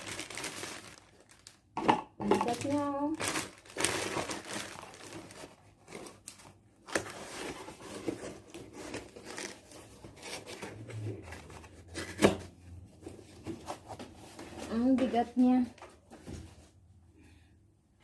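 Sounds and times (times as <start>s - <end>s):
packaging rustling and scraping: 0.0s - 1.6s, 2.4s - 15.0s.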